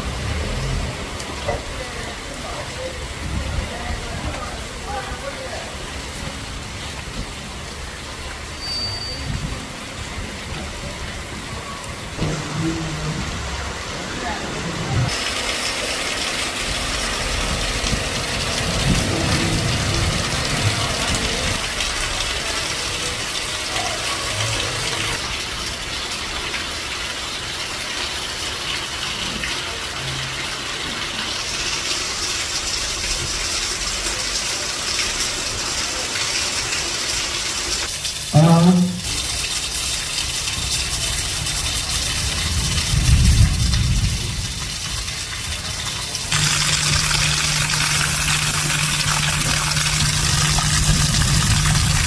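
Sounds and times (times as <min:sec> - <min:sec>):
heavy rain falling: 0:00.0 - 0:52.0
water gushing and pouring: 0:00.0 - 0:52.0
loud pitched sound: 0:46.3 - 0:52.0.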